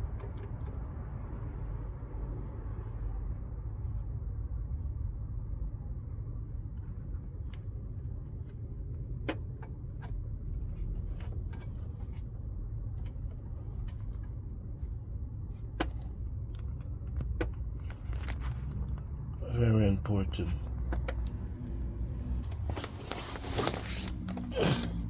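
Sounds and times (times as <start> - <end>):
low background rumble: 0.0 - 25.0
tools and metal parts clinking: 9.6 - 12.3.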